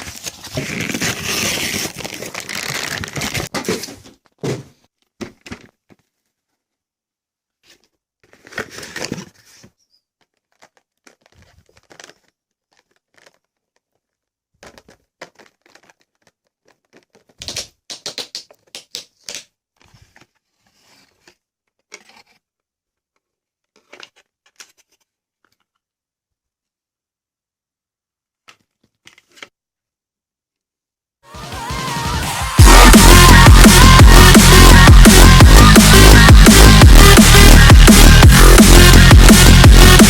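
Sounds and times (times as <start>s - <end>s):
packaging rustling and tearing: 0.0s - 4.4s, 7.7s - 17.9s, 18.5s - 25.9s.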